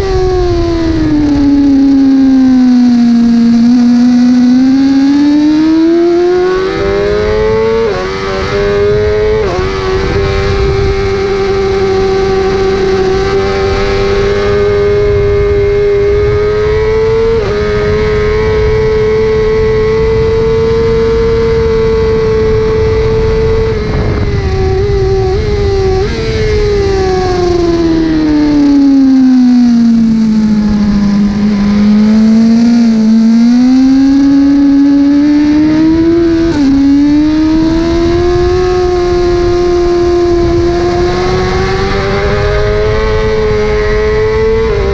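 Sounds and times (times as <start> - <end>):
superbike engine revving: 0.0 - 44.9.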